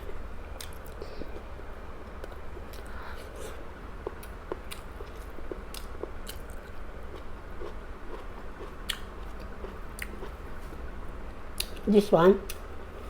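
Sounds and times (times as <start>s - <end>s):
person chewing food: 0.0s - 10.9s.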